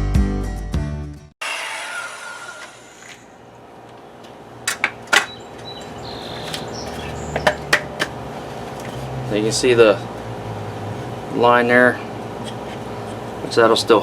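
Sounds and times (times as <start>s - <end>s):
wooden boards and tools knocking: 4.6s - 5.4s, 6.4s - 8.2s.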